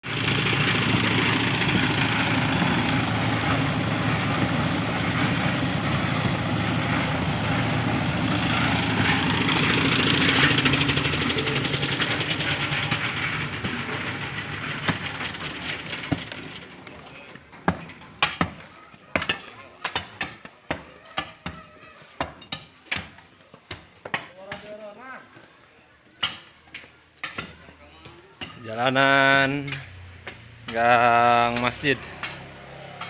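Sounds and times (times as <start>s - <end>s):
engine running: 0.0s - 17.8s.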